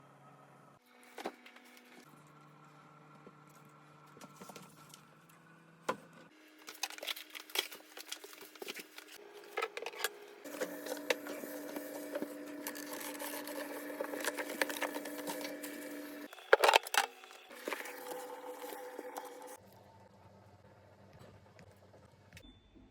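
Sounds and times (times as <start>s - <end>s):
refrigerator hum: 0.0s - 22.9s
household items clicking and rustling: 6.6s - 19.2s.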